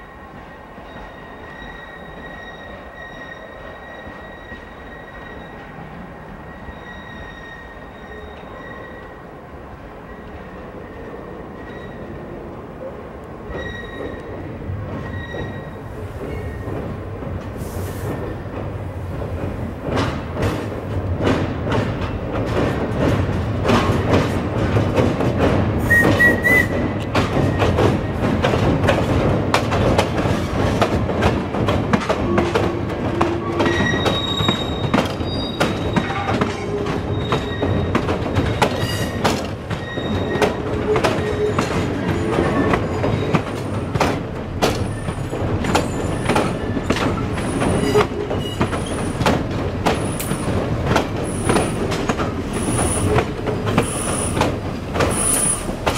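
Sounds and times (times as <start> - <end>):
train wheels clattering on rails: 0.0 - 55.9
high wheel squeals: 0.8 - 5.8, 6.4 - 9.2, 13.5 - 16.7, 33.2 - 43.8.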